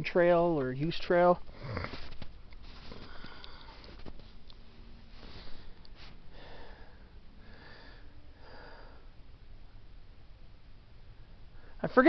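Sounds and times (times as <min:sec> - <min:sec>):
man breathing: 0:01.5 - 0:04.2, 0:05.0 - 0:09.2.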